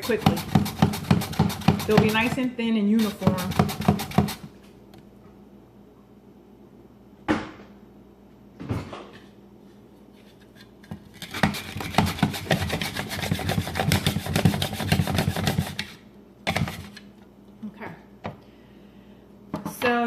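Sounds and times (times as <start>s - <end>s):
potato sliced on mandolin: 0.0s - 4.5s.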